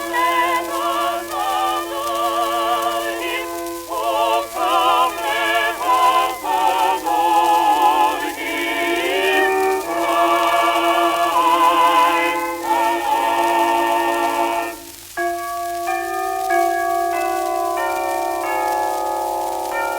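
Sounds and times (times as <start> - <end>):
operatic singing on old recording: 0.0 - 15.2.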